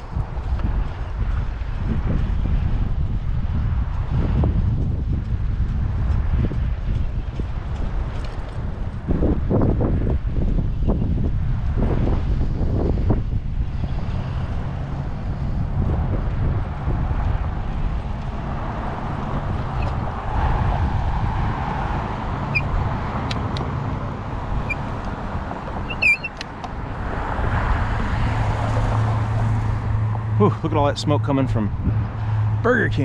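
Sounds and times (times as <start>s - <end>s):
wind rumble on microphone: 0.0s - 33.0s
car traffic passing: 12.8s - 33.0s
short high chirps: 25.9s - 26.4s.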